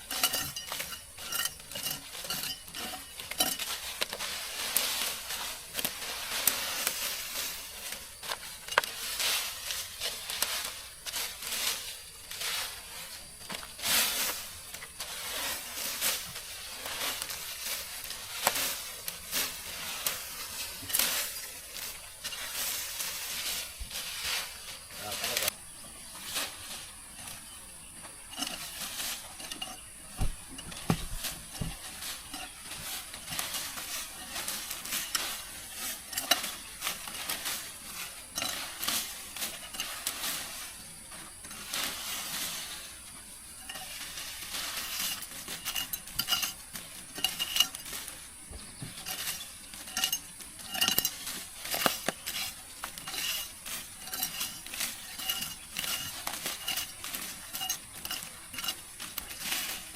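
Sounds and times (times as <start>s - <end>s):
utensils clinking on cookware: 0.0s - 4.3s, 28.2s - 29.9s, 30.5s - 40.5s, 43.6s - 48.1s, 48.9s - 59.9s
steady high hiss: 0.0s - 59.9s.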